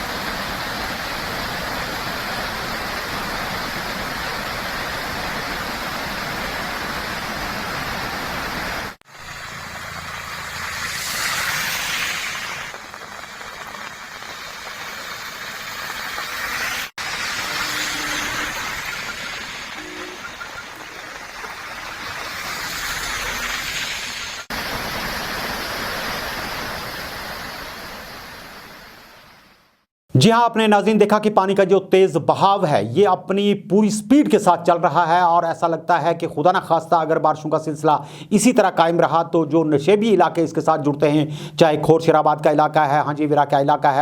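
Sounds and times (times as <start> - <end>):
mountain stream rushing: 0.0 - 29.4.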